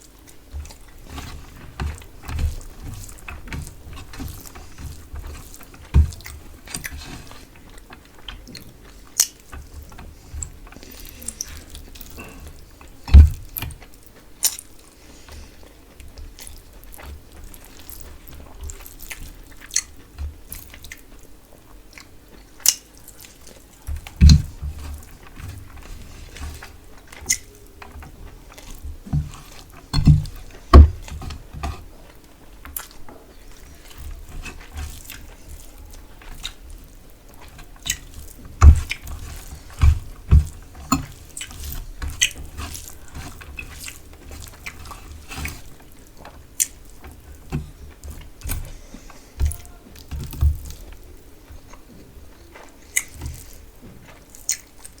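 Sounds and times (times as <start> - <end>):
wet chewing and crunching: 0.0 - 55.0.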